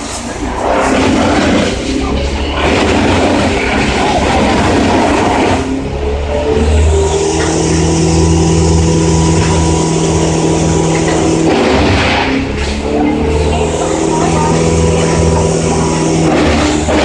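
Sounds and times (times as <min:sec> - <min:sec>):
large engine humming: 0:00.0 - 0:17.0.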